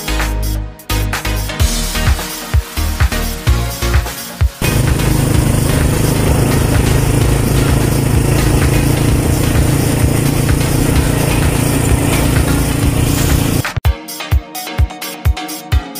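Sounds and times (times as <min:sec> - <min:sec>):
road noise: 0:04.6 - 0:13.8
small motorcycle engine running: 0:04.6 - 0:13.8.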